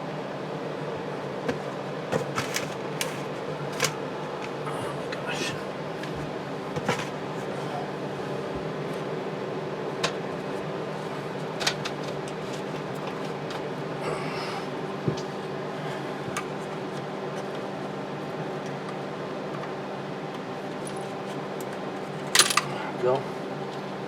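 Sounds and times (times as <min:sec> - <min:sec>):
steady hum: 0:00.0 - 0:24.0
clicks and knocks of tools: 0:20.8 - 0:22.7.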